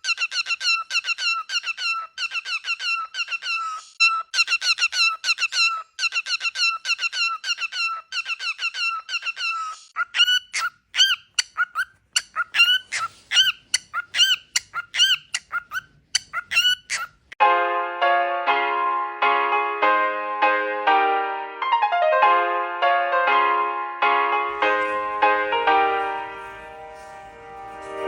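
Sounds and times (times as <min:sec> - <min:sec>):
cockatiel chirping: 0:00.0 - 0:17.4.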